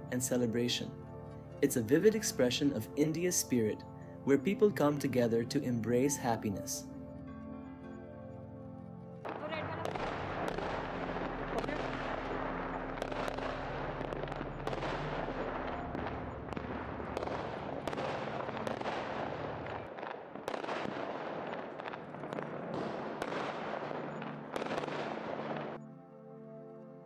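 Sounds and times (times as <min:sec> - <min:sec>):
low steady tones: 0:06.9 - 0:27.0
firecrackers cracking and popping: 0:09.3 - 0:25.8.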